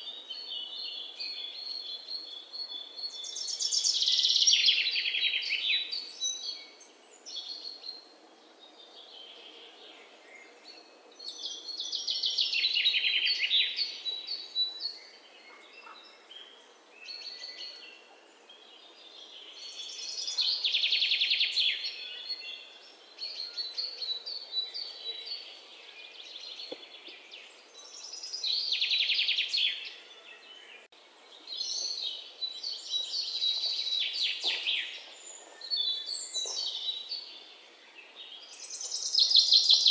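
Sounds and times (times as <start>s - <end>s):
soft bird chirps: 18.8s - 39.9s.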